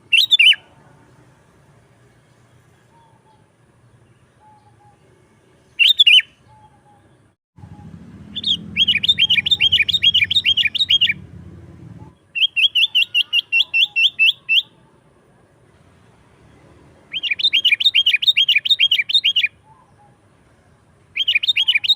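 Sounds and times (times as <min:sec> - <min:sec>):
bird singing sharp notes: 0:00.0 - 0:00.6, 0:04.2 - 0:11.2, 0:12.1 - 0:14.8, 0:17.1 - 0:20.2, 0:21.2 - 0:21.9.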